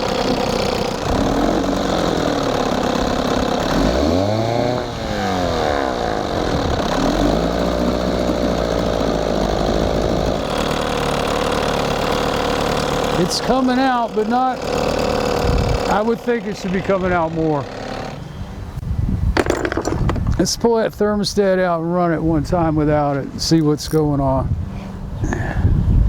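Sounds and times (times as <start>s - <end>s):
outboard motor idling and revving: 0.0s - 18.6s.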